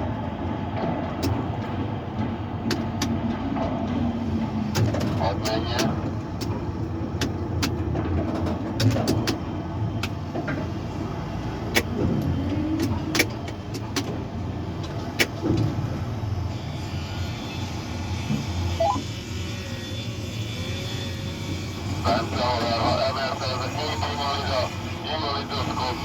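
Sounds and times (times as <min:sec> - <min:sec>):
short rising tone: 0:18.8 - 0:19.0.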